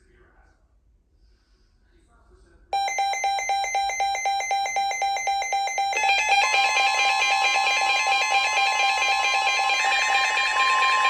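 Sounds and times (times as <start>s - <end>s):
steady high alarm tone: 2.8s - 11.0s
weather alert alarms beeping: 2.8s - 11.0s.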